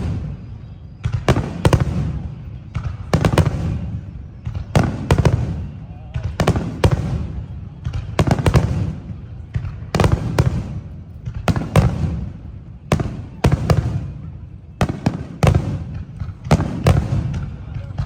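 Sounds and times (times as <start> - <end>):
fireworks exploding: 0.0 - 18.0.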